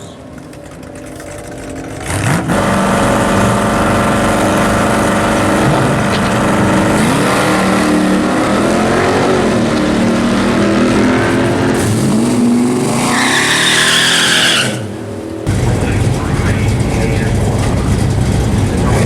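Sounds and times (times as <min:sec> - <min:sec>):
racing car engines revving: 0:00.0 - 0:19.0
tire squeal: 0:12.8 - 0:15.1.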